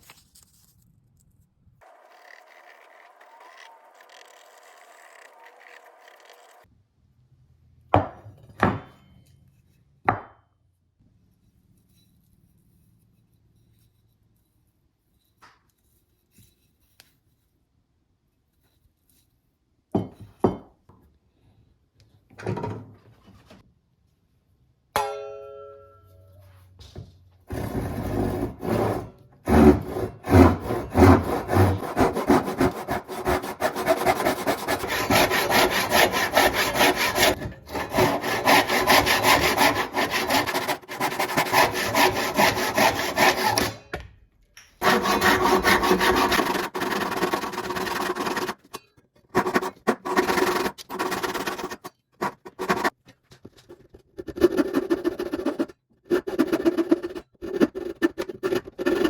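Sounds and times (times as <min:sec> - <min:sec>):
hand tool filing back and forth: 0:01.8 - 0:06.7, 0:27.5 - 0:43.8, 0:44.8 - 0:48.7, 0:49.4 - 0:53.0, 0:54.3 - 0:59.0.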